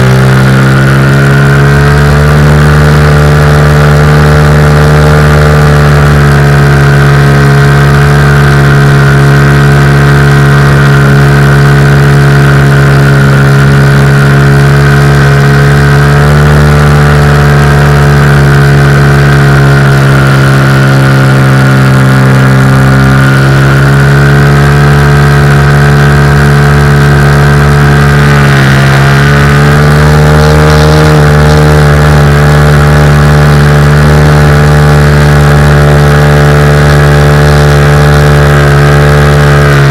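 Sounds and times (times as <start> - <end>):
model aircraft motor running: 0.0 - 39.9.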